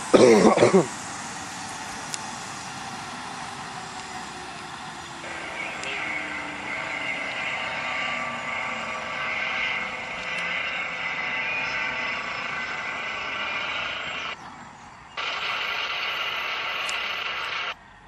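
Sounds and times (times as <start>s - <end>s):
helicopter whine through phone speaker: 3.0s - 17.8s.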